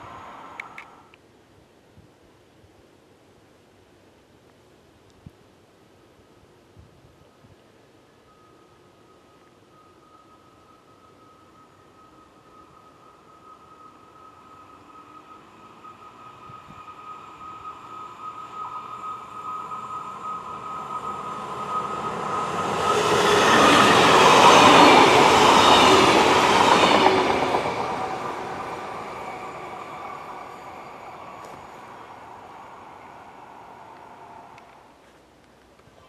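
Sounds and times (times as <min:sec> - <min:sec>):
high ringing from rails: 0:08.3 - 0:34.9
train wheels rushing on rails: 0:09.7 - 0:35.0.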